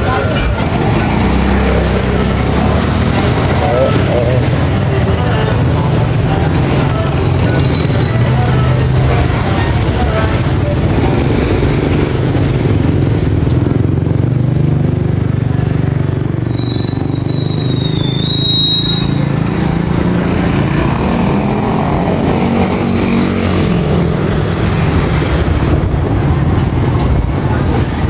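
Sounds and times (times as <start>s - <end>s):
motorcycle engine rumbling: 0.0s - 28.0s
high whistling tone: 16.4s - 19.7s.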